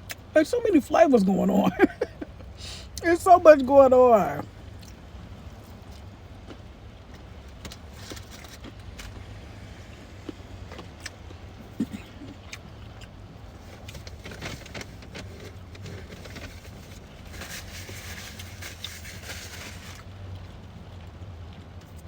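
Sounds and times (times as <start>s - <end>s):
chewing crunches and clicks: 4.8s - 5.0s, 5.7s - 9.3s, 10.2s - 16.5s
rustle: 12.8s - 22.0s.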